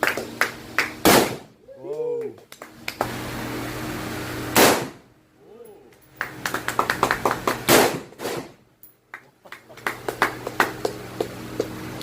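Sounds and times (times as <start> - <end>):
steady hum: 0.0 - 12.0
gunshots: 1.0 - 1.5, 4.6 - 5.0, 7.7 - 8.6.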